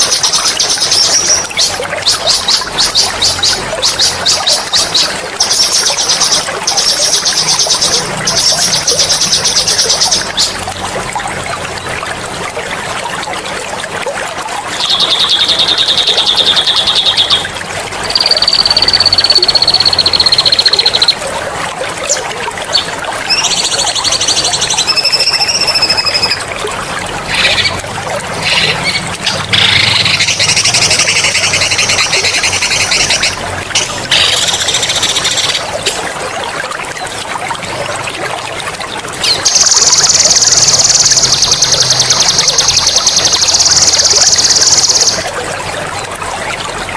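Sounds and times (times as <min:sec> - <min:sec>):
trickle of running water: 0:00.0 - 0:46.9
songbird singing trills: 0:14.8 - 0:17.4, 0:18.1 - 0:21.2, 0:22.7 - 0:26.5, 0:39.2 - 0:45.2.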